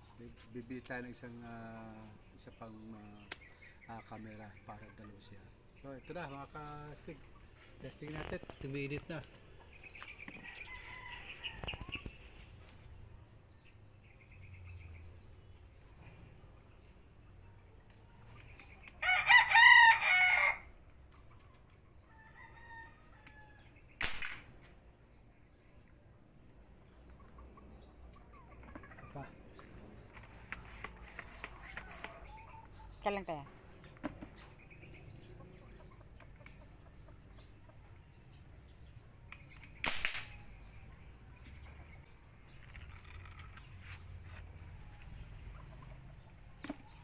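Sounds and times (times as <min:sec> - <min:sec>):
chicken clucking: 0:04.1 - 0:05.4, 0:27.0 - 0:29.8, 0:34.3 - 0:38.1, 0:44.8 - 0:47.0
rooster crowing: 0:19.0 - 0:20.7, 0:22.1 - 0:23.7
pipe gun shot pop: 0:24.0 - 0:24.5, 0:39.8 - 0:40.4.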